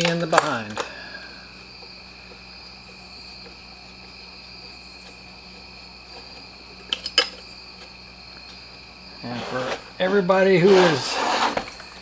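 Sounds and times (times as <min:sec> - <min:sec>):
high insect trill: 0:00.0 - 0:12.0.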